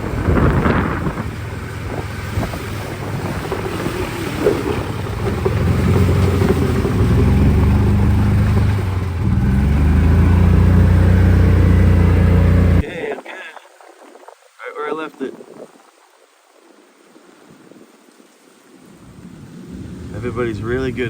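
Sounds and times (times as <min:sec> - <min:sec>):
outboard motor running: 0:00.0 - 0:12.8, 0:19.1 - 0:21.0.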